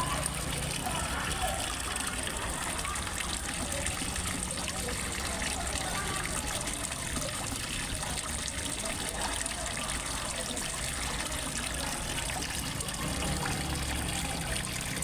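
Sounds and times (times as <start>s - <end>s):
small waterfall splashing into pond: 0.0s - 15.0s.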